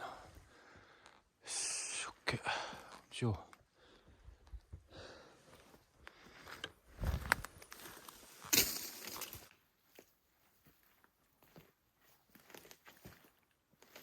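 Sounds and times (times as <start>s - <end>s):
footsteps on forest floor: 5.5s - 14.0s
crunching scuffs: 7.0s - 14.0s.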